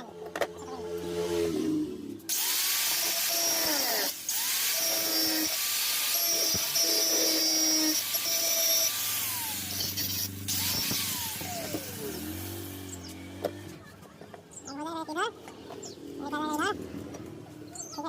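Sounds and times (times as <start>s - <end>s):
power tool grinding metal: 2.3s - 13.8s.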